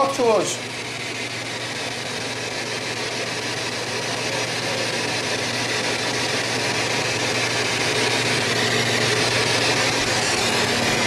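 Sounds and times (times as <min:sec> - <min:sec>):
radio static hiss: 0:00.0 - 0:00.7.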